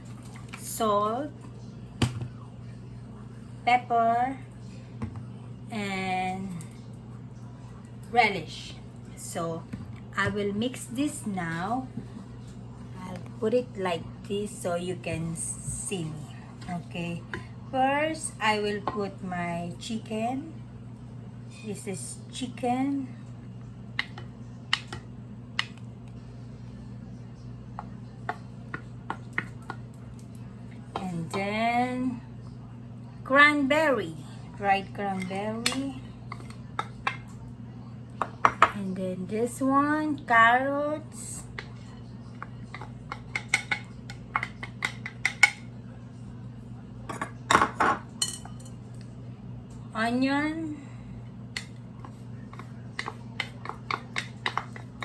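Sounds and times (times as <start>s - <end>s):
steady low hum: 0.0s - 55.0s
utensil tapping against bowl: 51.6s - 55.0s.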